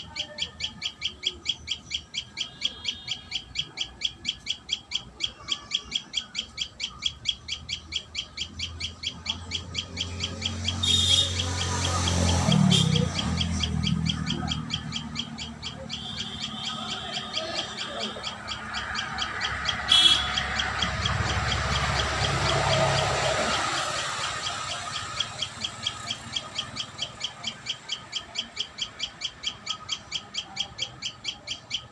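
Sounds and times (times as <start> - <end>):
bird chirping: 0.0 - 31.9.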